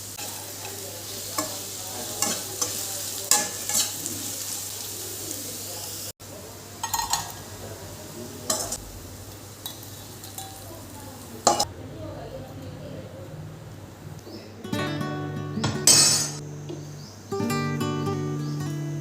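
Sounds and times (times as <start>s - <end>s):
food sizzling in a hot pan: 0.0s - 11.7s, 15.7s - 19.0s.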